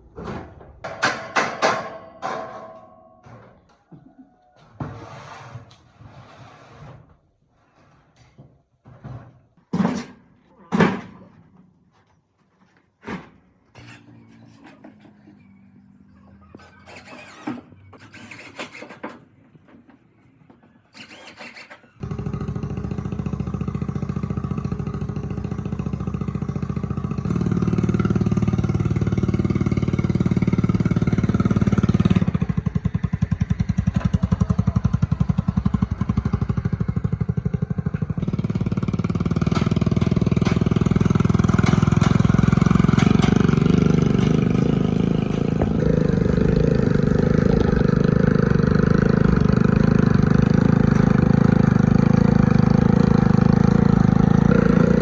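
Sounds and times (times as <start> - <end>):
small engine chugging: 21.0 - 55.0.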